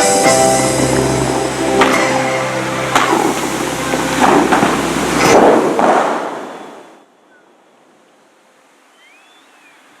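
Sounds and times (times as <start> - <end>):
water spray crashing down: 0.0 - 6.5
faint whistles: 8.9 - 10.0.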